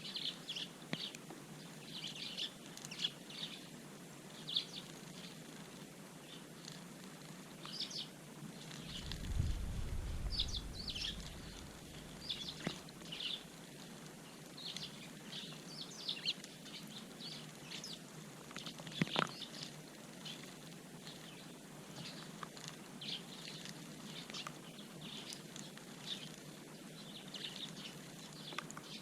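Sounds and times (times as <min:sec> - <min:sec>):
sparrows chirping: 0:00.0 - 0:05.5, 0:07.6 - 0:13.6, 0:14.2 - 0:29.0
low rumble: 0:08.8 - 0:12.6.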